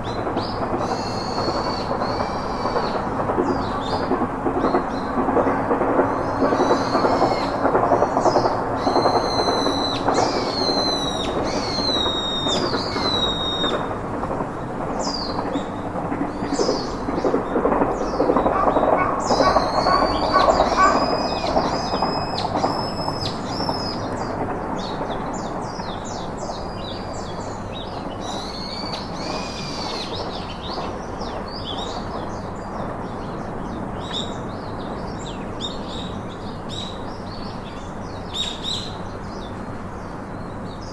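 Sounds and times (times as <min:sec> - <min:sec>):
birds chirping: 0:00.0 - 0:05.2, 0:06.1 - 0:14.0, 0:14.9 - 0:40.9
steady rushing noise: 0:00.0 - 0:40.9
downward-sweeping bird whistles: 0:08.8 - 0:13.9, 0:19.0 - 0:24.0.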